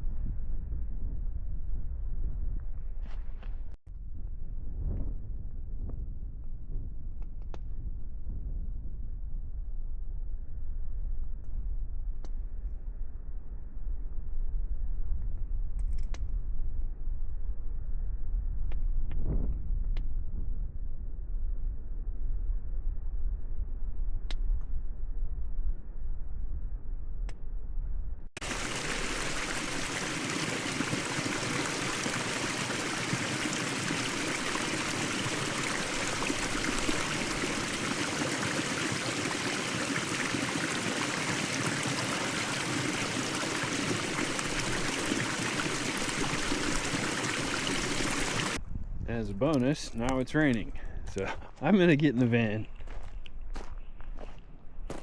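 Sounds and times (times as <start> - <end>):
wind rumbling on microphone: 0.0 - 51.6
rain falling hiss: 28.4 - 48.6.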